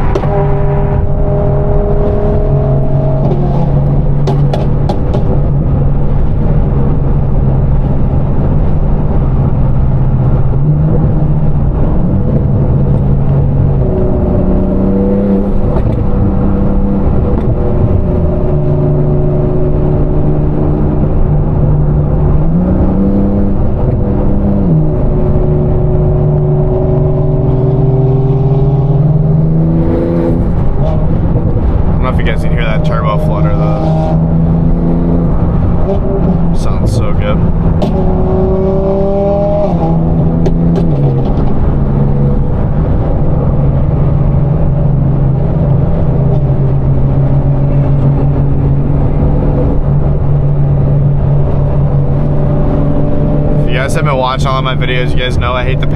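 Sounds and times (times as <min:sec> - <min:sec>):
car engine droning: 0:00.0 - 0:55.9.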